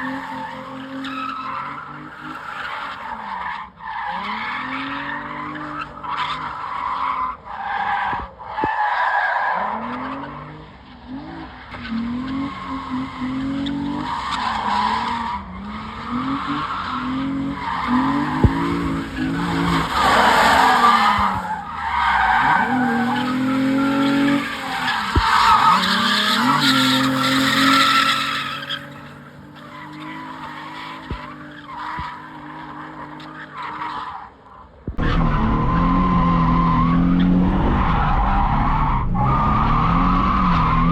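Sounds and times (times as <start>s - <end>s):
car engine revving: 9.5s - 34.0s, 34.7s - 40.9s
tyres screeching: 13.7s - 34.3s.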